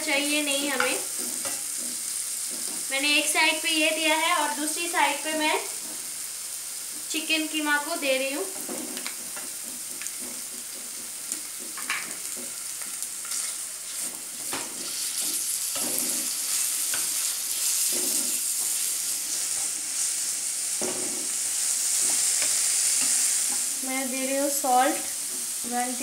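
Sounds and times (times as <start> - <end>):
food sizzling in oil: 0.0 - 26.0
spatula scraping pan: 0.4 - 3.0, 8.6 - 23.7.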